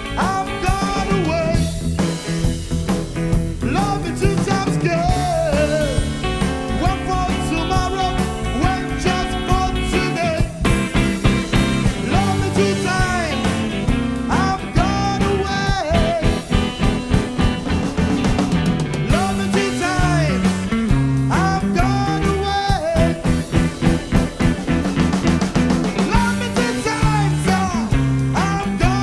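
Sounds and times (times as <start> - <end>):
rock band playing: 0.0 - 29.0
lead guitar bending notes: 16.1 - 21.4, 23.0 - 28.3.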